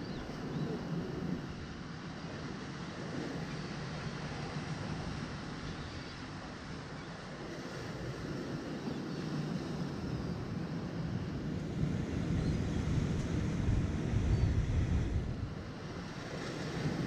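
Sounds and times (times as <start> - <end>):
wind buffeting microphone: 7.6 - 17.0
waves washing against shore: 10.6 - 17.0.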